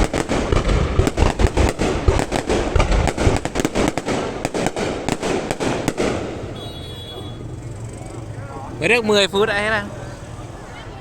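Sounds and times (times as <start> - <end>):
fireworks bangs and crackle: 0.0 - 7.4.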